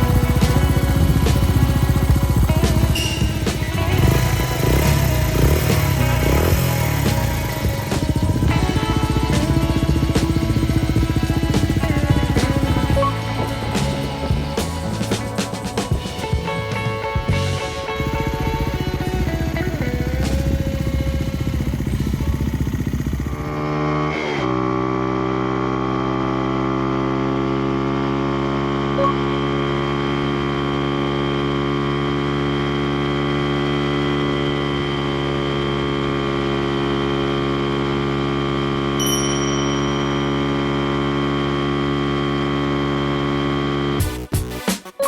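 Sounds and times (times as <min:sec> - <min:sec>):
motorcycle engine idling: 0:00.0 - 0:23.8.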